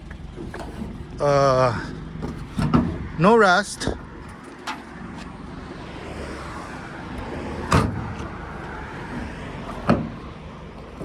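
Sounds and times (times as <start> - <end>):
truck door clunks: 0.0 - 3.2, 7.5 - 11.0.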